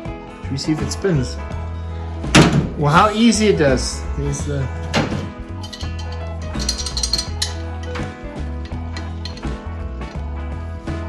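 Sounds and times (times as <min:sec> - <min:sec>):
background music with bass line: 0:00.0 - 0:11.0
sharp metallic clinks: 0:05.6 - 0:09.6.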